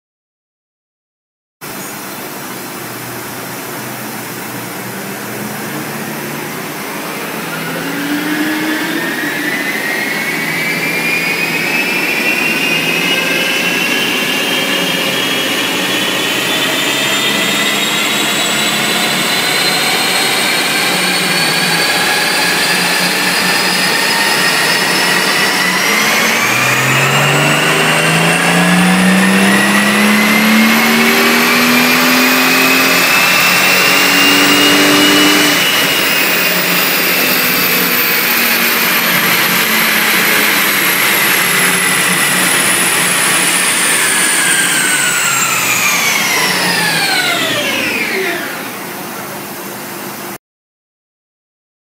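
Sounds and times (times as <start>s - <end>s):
high whine: 1.6s - 50.4s
car engine revving under load: 2.5s - 48.8s.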